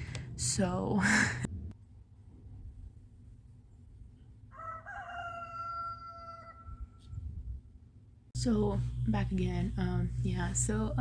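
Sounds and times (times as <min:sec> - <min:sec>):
rooster crowing: 0:04.5 - 0:07.0.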